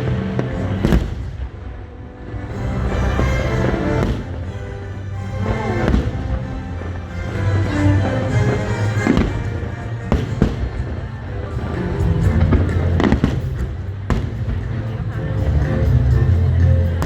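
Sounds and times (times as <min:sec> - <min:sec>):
fireworks bangs: 0:00.0 - 0:01.6, 0:03.6 - 0:04.5, 0:09.0 - 0:11.0
low rumble: 0:00.0 - 0:17.0
music playing: 0:00.0 - 0:17.0.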